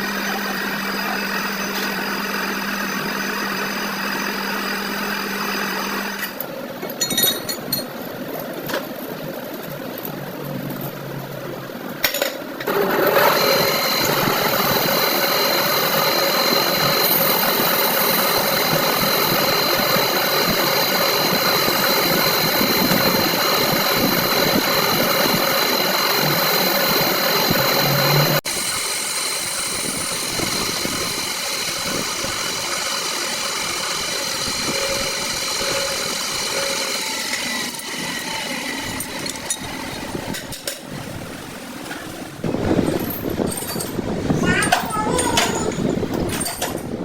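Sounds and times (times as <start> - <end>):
quieter machine running: 0.0 - 6.8, 12.7 - 43.3.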